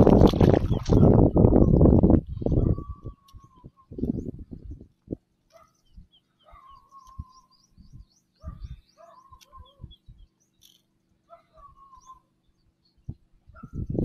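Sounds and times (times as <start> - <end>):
birds whistling: 5.6 - 10.4, 11.4 - 12.3.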